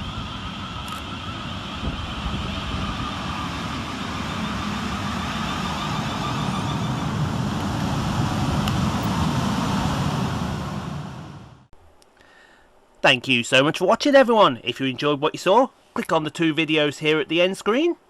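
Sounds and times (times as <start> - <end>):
electric train arriving: 0.0 - 11.7.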